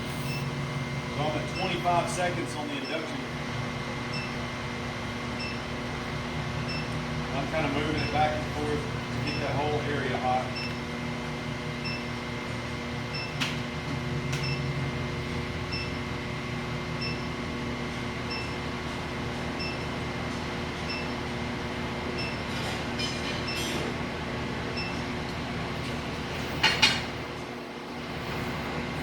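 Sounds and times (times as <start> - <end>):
induction heater humming: 0.0 - 29.0.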